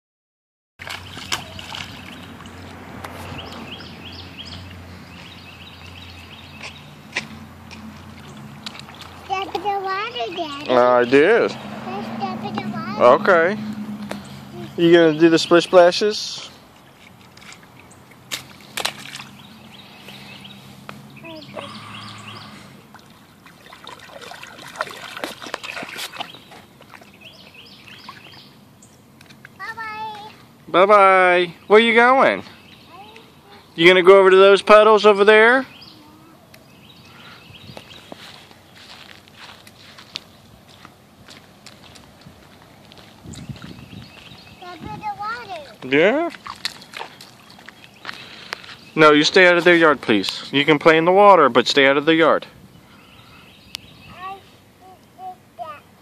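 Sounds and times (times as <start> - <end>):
feet splashing in puddle: 0.8 - 9.8, 16.6 - 28.6, 38.0 - 44.6, 45.6 - 48.8.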